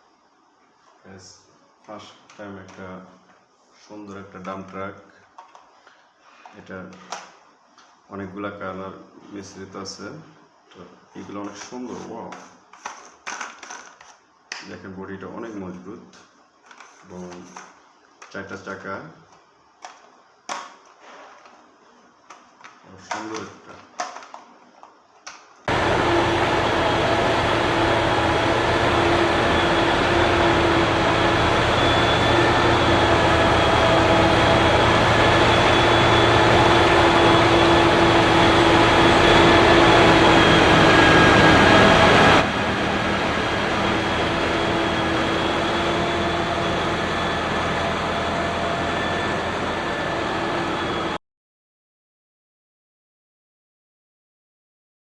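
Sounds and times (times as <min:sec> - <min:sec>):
vehicle running hum: 0:25.7 - 0:51.2.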